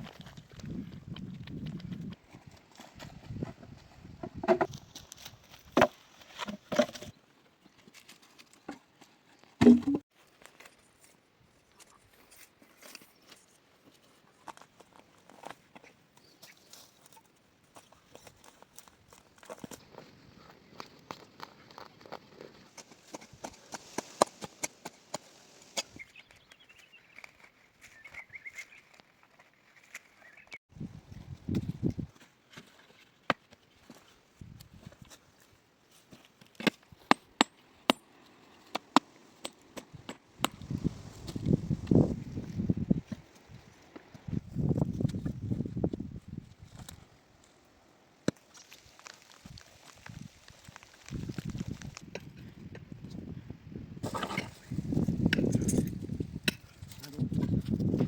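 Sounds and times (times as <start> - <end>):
knocks and thumps: 4.2 - 4.7, 9.6 - 10.0
bird singing trilled song: 27.9 - 28.9.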